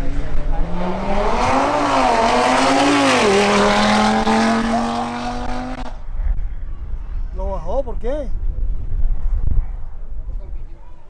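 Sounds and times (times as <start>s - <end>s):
car engine accelerating hard: 0.0s - 6.0s.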